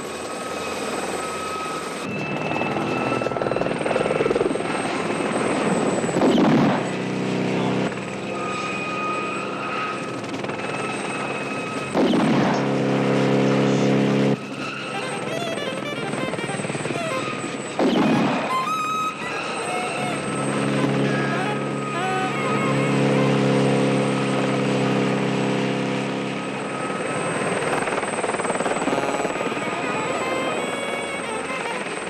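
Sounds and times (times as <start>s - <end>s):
helicopter engine and rotor noise: 0.0s - 32.0s
long low held tones: 18.6s - 25.1s.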